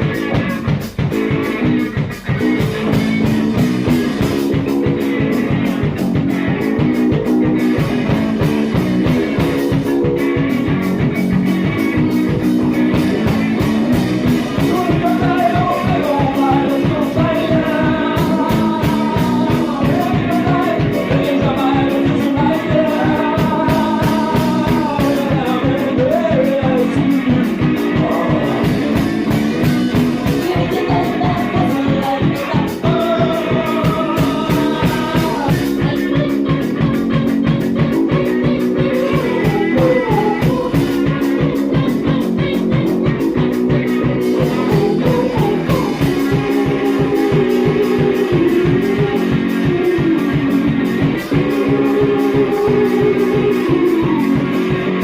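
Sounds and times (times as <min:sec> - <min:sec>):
rock song with guitar and drums: 0:00.0 - 0:55.0
person singing: 0:12.0 - 0:55.0.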